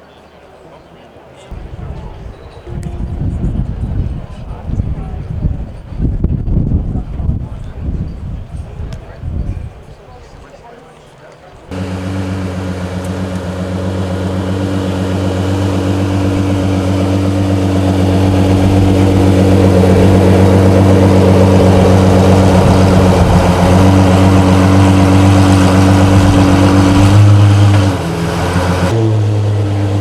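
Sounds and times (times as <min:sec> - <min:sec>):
car engine running: 0:11.7 - 0:30.0.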